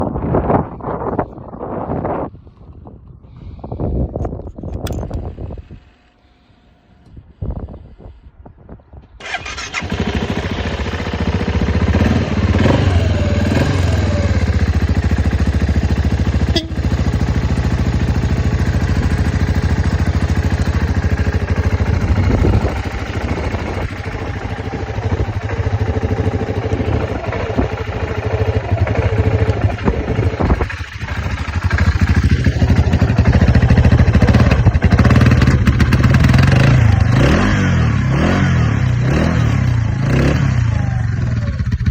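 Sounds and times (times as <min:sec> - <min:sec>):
starter cranking: 0:09.2 - 0:10.1
motorcycle engine running: 0:09.2 - 0:41.9.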